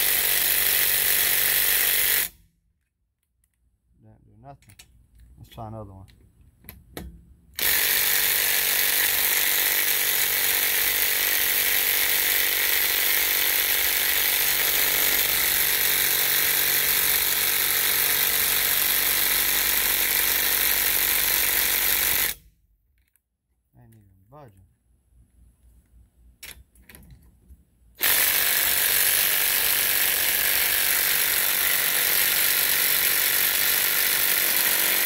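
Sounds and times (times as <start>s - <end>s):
impact driver hammering: 28.0s - 35.0s.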